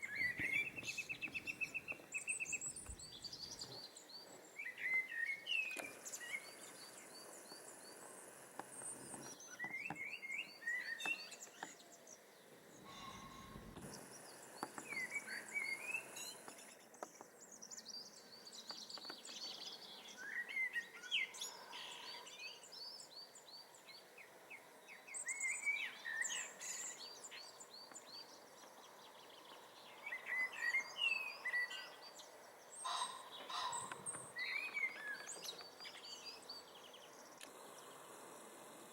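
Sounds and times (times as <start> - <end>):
blackbird singing: 0.0 - 8.0, 9.2 - 38.0
small birds chirping: 0.0 - 38.9.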